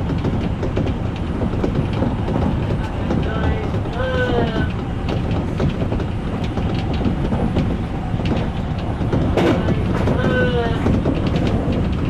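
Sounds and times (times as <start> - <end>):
electric train rumbling: 0.0 - 12.0
wheels clicking over rails: 0.0 - 12.0.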